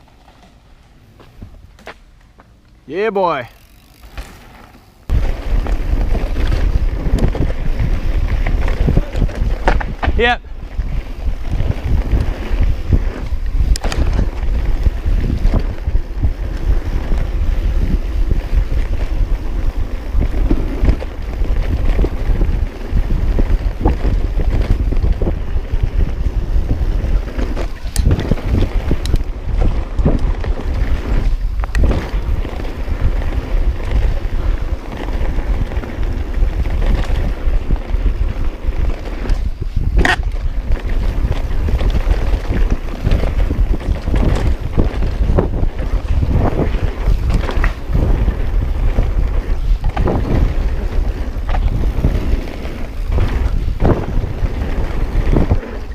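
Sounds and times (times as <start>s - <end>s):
bike rattling and knocking: 0.0s - 55.9s
wind rumbling on microphone: 3.2s - 55.9s.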